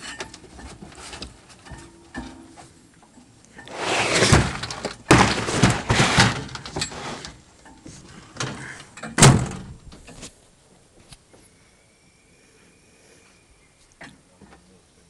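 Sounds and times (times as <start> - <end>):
loud bangs and knocks: 3.7 - 6.7.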